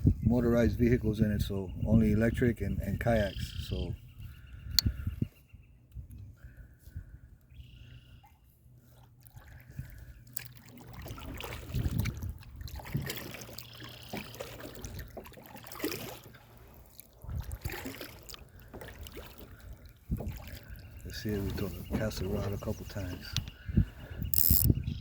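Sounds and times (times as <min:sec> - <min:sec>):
kayak paddle splashing water: 0:08.2 - 0:22.1.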